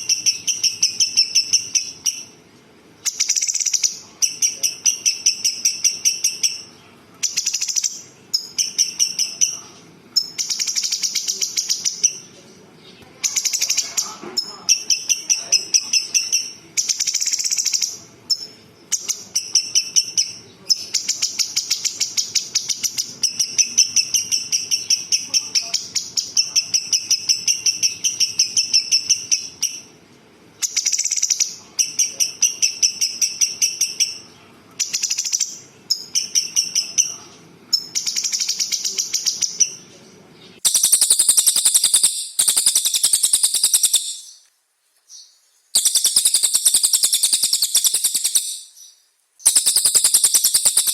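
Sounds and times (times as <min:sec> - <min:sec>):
songbird trilling: 0:00.0 - 0:02.4, 0:03.0 - 0:30.0, 0:30.6 - 0:44.5, 0:45.1 - 0:50.9
harsh high trill: 0:40.6 - 0:44.3, 0:49.5 - 0:50.9.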